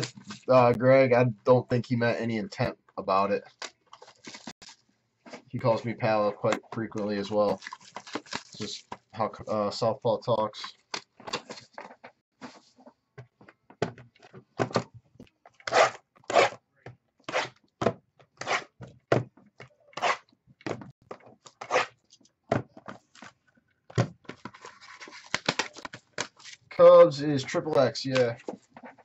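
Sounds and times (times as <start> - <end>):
card packs rustling and tearing: 3.5 - 4.8, 7.0 - 9.1, 24.2 - 28.5.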